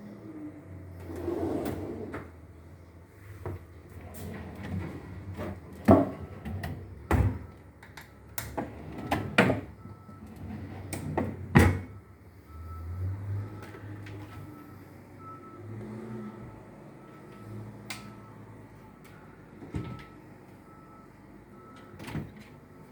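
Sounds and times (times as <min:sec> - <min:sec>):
indoor knocks and clunks: 0:05.8 - 0:07.5, 0:19.7 - 0:20.1.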